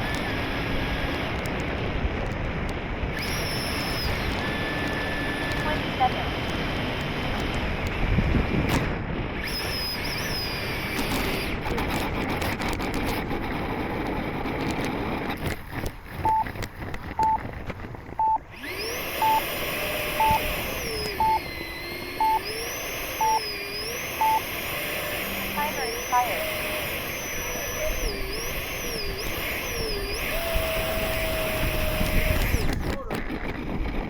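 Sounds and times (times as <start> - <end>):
ducted fan jet rushing: 0.0 - 34.0
thin whine sliding in pitch: 9.5 - 32.9
transmitter timer beeps: 16.2 - 16.6, 17.2 - 17.5, 18.2 - 26.7.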